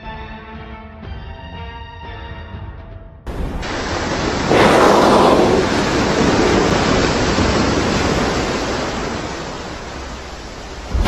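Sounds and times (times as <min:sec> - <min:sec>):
avalanche roaring: 0:03.3 - 0:11.0
wind buffeting microphone: 0:03.3 - 0:11.0.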